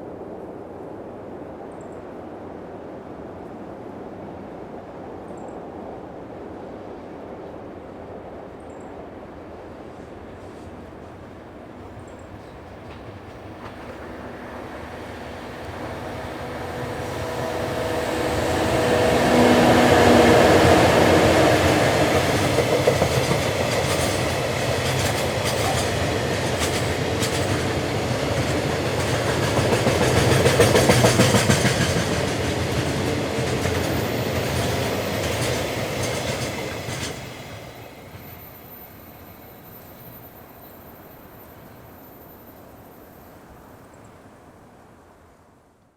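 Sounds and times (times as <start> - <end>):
locomotive hum: 9.2 - 43.6
train wheels clickety-clack: 10.0 - 39.0.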